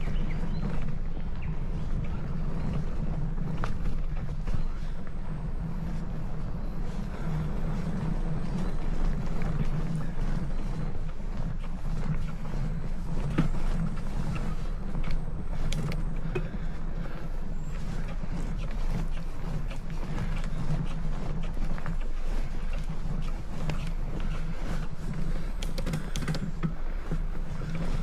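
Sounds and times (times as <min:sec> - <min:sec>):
bicycle low rumble: 0:00.0 - 0:28.0
bicycle clicks and ticks: 0:11.7 - 0:28.0.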